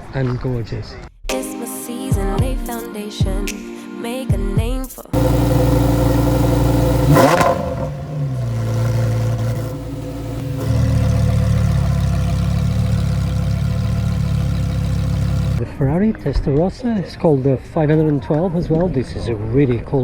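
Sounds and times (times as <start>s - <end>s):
car engine idling and revving: 5.2s - 15.6s.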